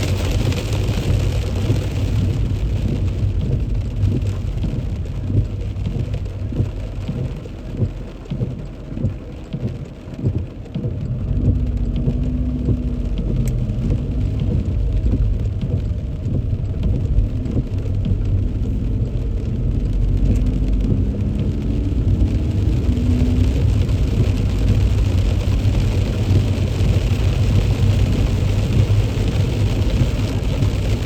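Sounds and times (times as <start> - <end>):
heavy rain on a car body: 0.0 - 31.0
moving car rumble: 0.0 - 31.0.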